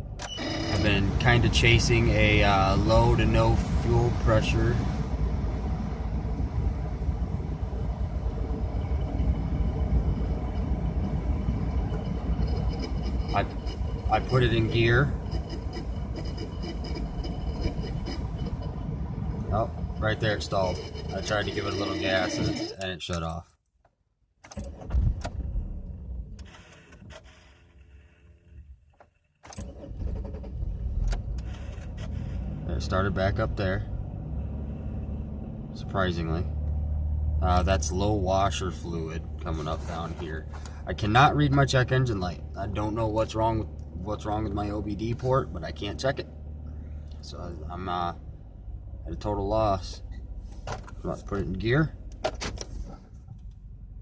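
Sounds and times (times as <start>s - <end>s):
car engine idling: 0.0s - 22.7s
car engine stalling and restarting: 0.0s - 22.8s, 24.4s - 54.0s.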